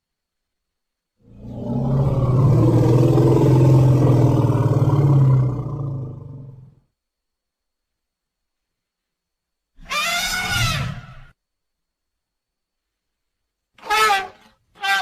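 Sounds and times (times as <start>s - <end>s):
elephant roaring: 1.2s - 6.8s.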